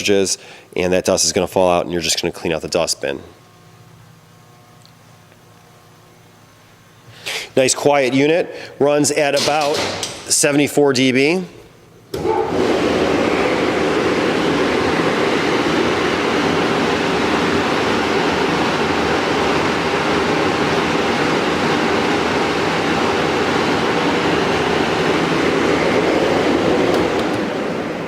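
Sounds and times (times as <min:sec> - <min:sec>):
blower rushing air: 0:12.1 - 0:28.0.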